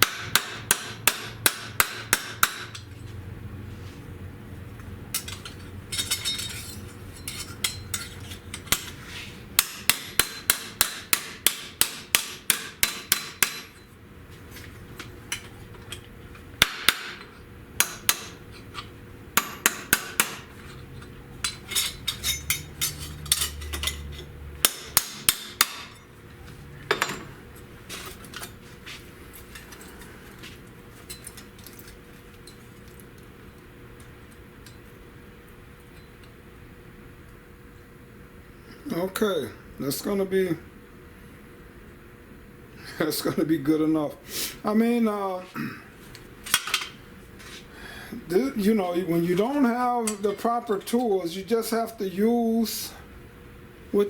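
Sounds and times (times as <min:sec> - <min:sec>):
hammer on sheet steel: 0:00.0 - 0:02.8, 0:09.6 - 0:13.7.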